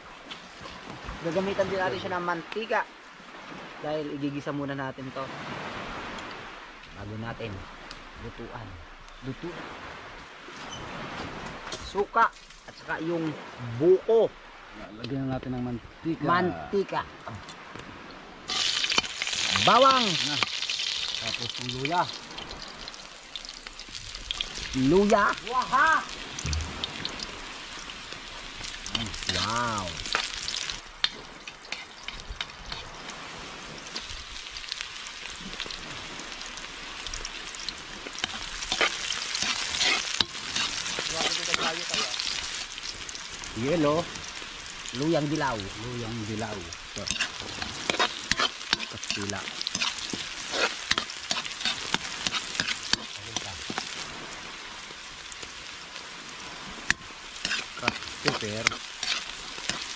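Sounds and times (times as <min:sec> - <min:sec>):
garlic and ginger sizzling in oil: 0:18.5 - 0:59.9.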